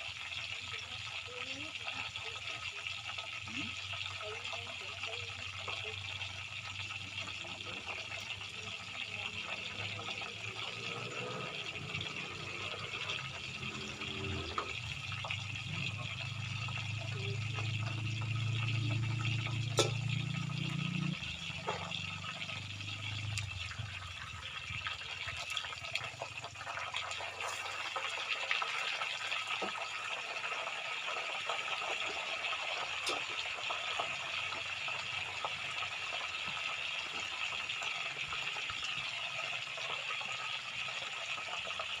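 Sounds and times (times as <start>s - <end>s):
tofu sizzling in hot oil: 0.0s - 42.0s
oil popping: 2.9s - 42.0s.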